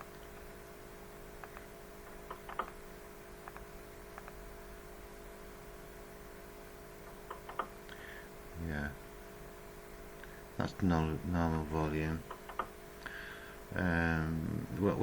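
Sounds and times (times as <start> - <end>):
steady faint hum: 0.0 - 15.0
faint tapping and clicking: 1.4 - 2.8, 3.4 - 4.4.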